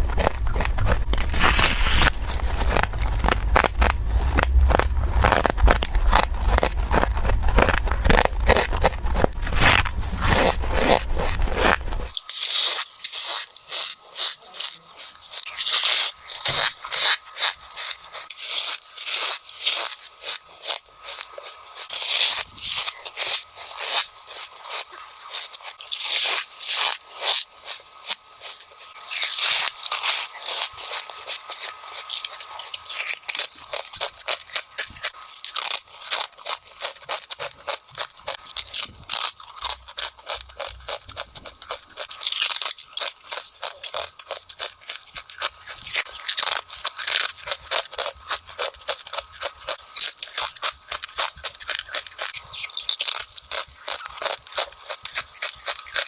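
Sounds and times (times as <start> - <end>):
low rumble: 0.0 - 12.1
chewing crunchy frost: 0.0 - 56.0.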